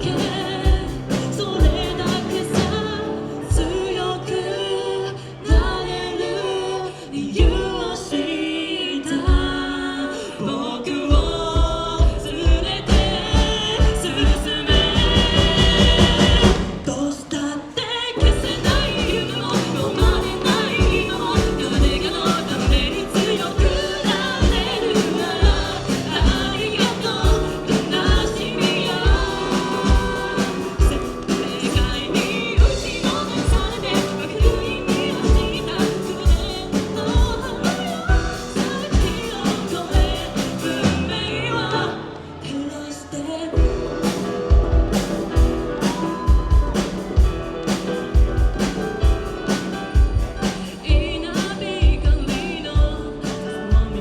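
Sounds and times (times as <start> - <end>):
steady kick drum beat: 0.0 - 2.5, 11.1 - 16.9, 18.2 - 40.8, 43.6 - 54.0
live band playing pop song: 0.0 - 17.5, 18.1 - 54.0
person singing: 0.0 - 54.0.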